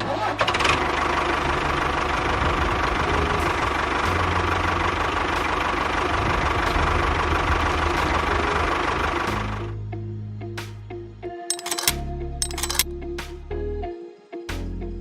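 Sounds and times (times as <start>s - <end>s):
engine idling: 0.6s - 9.7s.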